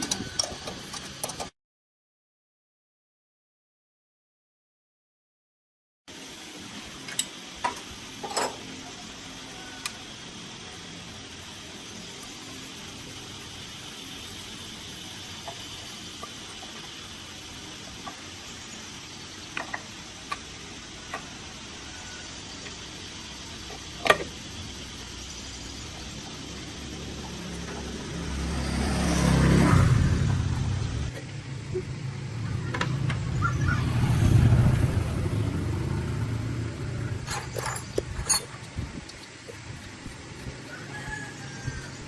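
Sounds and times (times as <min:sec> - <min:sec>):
motor engine revving: 0:25.6 - 0:38.4.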